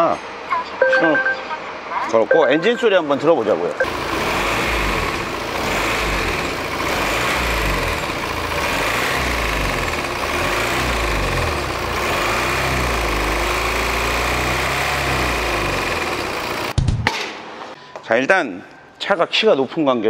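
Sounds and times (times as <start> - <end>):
diesel engine idling with tapping: 3.8 - 16.8.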